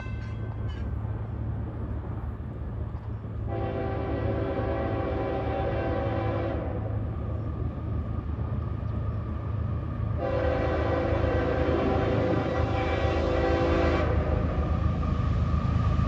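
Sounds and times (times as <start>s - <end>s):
passing train rumble: 0.0s - 16.0s
locomotive air horn blasts: 3.5s - 6.9s, 10.2s - 14.4s.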